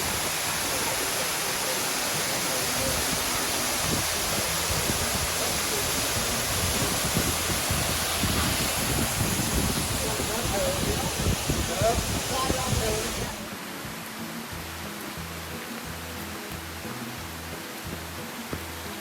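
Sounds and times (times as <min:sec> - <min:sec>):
waterfall rushing: 0:00.0 - 0:19.0
wind buffeting microphone: 0:02.8 - 0:13.4.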